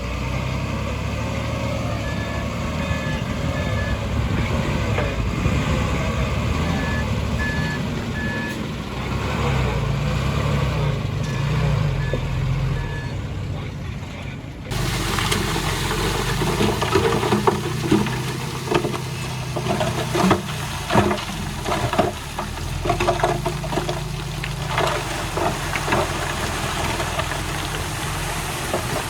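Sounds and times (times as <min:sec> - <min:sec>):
heavy machinery diesel engine: 0:00.0 - 0:29.0
metal and stone clanking: 0:14.7 - 0:29.0.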